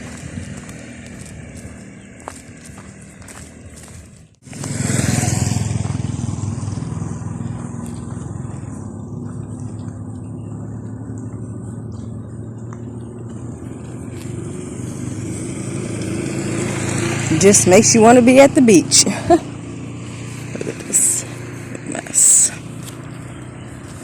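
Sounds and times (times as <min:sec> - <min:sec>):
motor engine running: 0:00.0 - 0:24.0.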